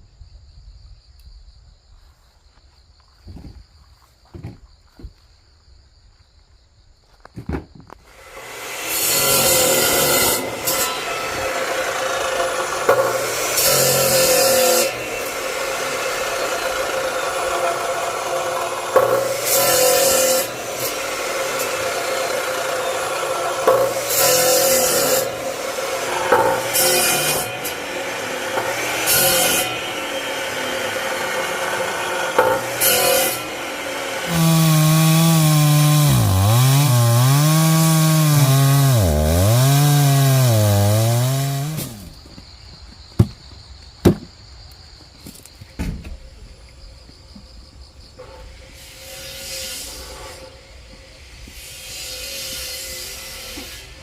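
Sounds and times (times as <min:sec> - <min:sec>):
wood knocking: 0:04.2 - 0:05.2, 0:07.4 - 0:08.0, 0:43.2 - 0:43.4, 0:44.0 - 0:44.3
chainsaw cutting wood: 0:07.8 - 0:42.2, 0:51.5 - 0:54.0.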